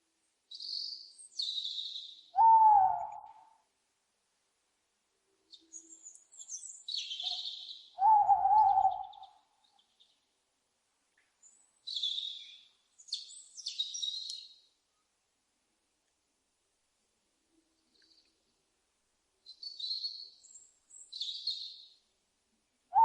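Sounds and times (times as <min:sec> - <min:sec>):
owl hooting: 0:02.4 - 0:03.5, 0:07.2 - 0:09.4.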